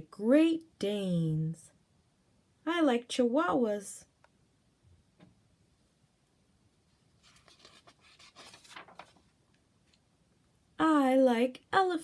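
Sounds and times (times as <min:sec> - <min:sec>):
paper page turning: 0:07.2 - 0:10.0.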